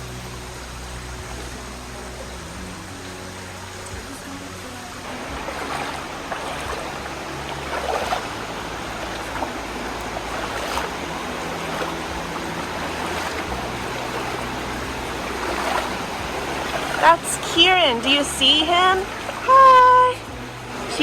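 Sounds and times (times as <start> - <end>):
river flowing over rocks: 0.0 - 21.0.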